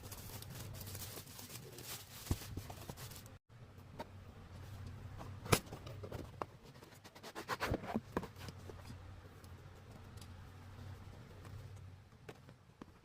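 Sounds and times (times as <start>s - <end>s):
scratching or rustling: 0.0s - 3.4s
low steady hum: 0.0s - 6.9s, 7.7s - 13.0s.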